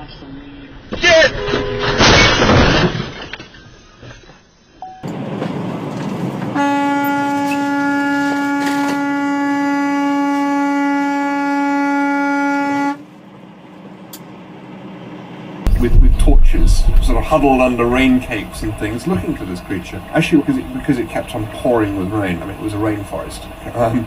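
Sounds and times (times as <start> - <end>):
vehicle horn blast: 1.3 - 2.0, 6.6 - 13.0
road noise: 5.0 - 9.1, 12.9 - 24.0.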